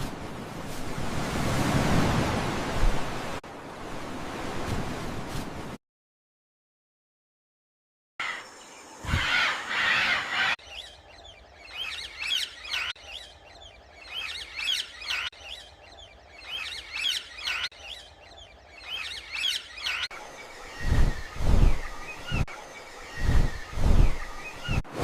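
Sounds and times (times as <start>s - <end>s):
small birds chirping: 8.2s - 24.9s
rush of wind-like noise: 20.2s - 25.0s.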